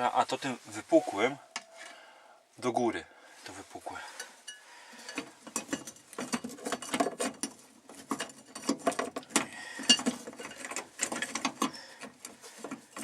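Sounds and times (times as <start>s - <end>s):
sheet-metal plate clicking and rattling: 5.0s - 13.0s.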